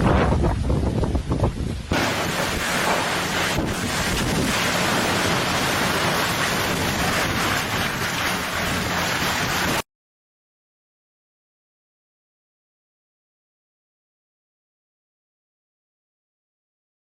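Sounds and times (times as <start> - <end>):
water rushing: 0.0 - 9.8
wind rushing: 0.0 - 9.8.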